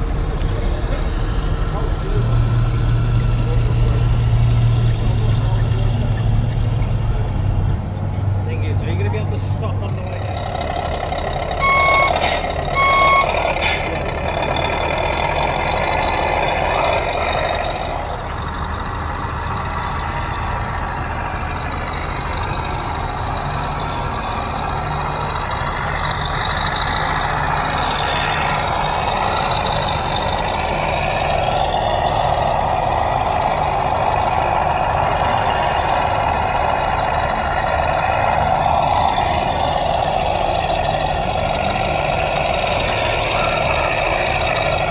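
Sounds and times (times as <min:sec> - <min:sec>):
truck engine running: 0:00.0 - 0:44.9
reversing alarm beeps: 0:11.6 - 0:13.5.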